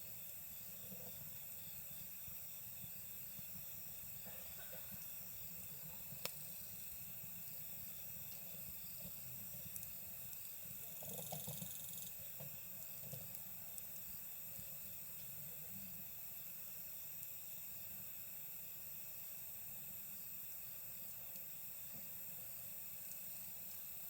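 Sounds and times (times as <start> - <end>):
campfire crackling: 0.0 - 24.0
insects chirping in high trills: 0.0 - 24.0
fire popping: 0.2 - 15.4.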